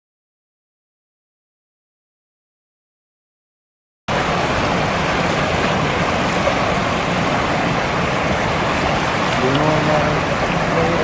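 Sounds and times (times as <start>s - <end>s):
river rushing: 4.1s - 11.0s.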